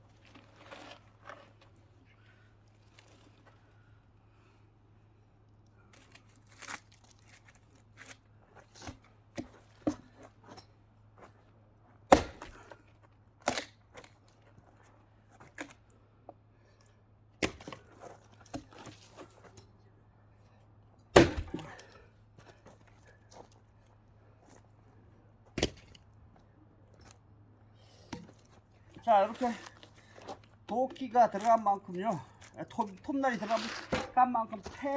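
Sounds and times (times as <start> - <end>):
axe splitting firewood: 6.0 - 10.6, 12.1 - 14.2, 17.4 - 19.6, 21.0 - 22.6, 25.5 - 26.1, 27.9 - 34.9
wood cracking: 21.2 - 21.9.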